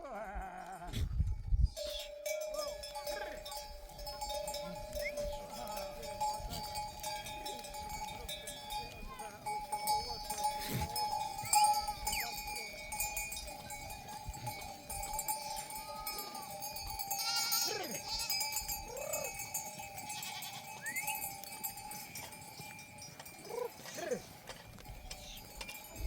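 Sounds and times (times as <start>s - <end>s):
sheep bleating: 0.0s - 1.1s, 15.6s - 19.4s, 20.0s - 21.0s
sheep bells ringing: 1.2s - 26.0s.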